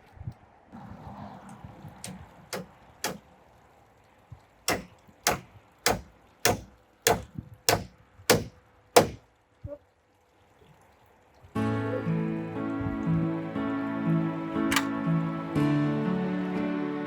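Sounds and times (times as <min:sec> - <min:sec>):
hammer striking wood: 0:02.1 - 0:03.2, 0:04.7 - 0:09.2.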